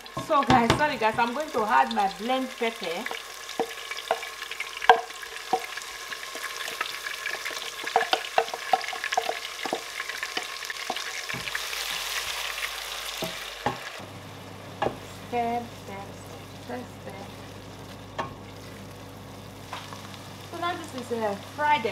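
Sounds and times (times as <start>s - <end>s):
pepper mix sizzling in hot oil: 0.0s - 21.9s
wooden spoon tapping and scraping: 3.6s - 4.3s, 7.8s - 11.6s.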